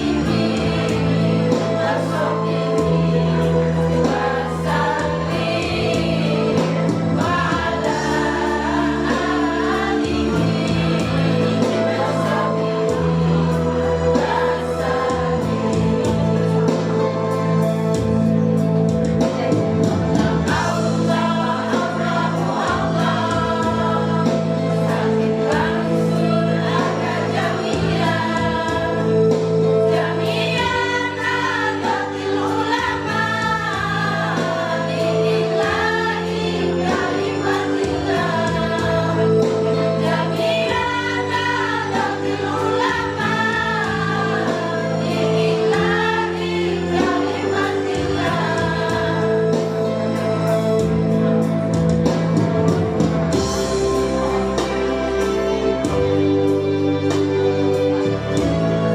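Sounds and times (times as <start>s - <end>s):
choir singing in unison: 0.0s - 51.5s.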